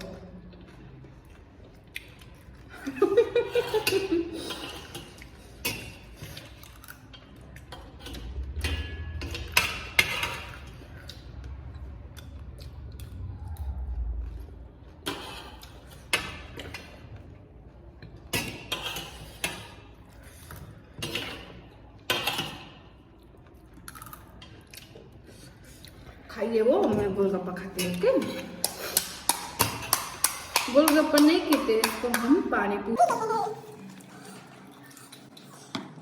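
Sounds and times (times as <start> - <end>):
low rumble: 11.4 - 15.0
crisp shells crunching and chewing: 23.4 - 26.0.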